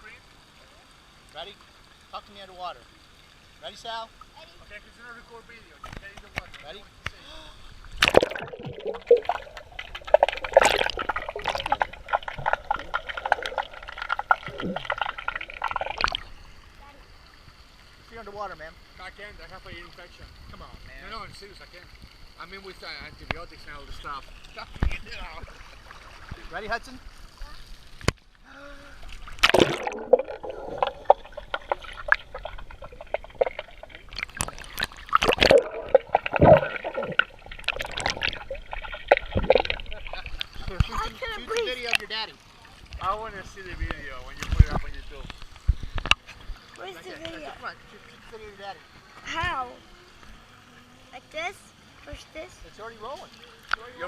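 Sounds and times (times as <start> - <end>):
pool water splashing: 0.0 - 20.1, 21.1 - 54.0
underwater bubbling and gurgling: 6.3 - 18.1, 29.0 - 42.0, 42.6 - 47.4.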